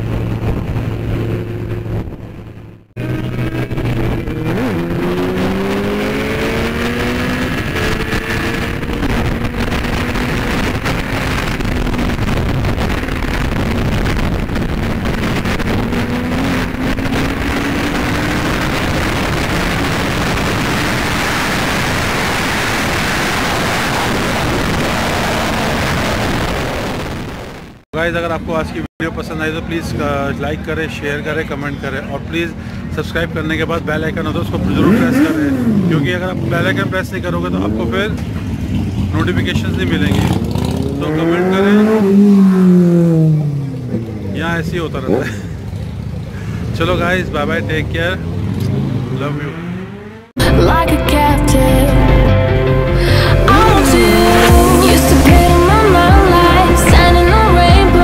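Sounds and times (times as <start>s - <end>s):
motorcycle engine accelerating: 0.0s - 27.8s, 33.4s - 51.0s, 51.6s - 58.0s
loud steady rush of noise: 0.0s - 36.5s, 52.8s - 58.0s.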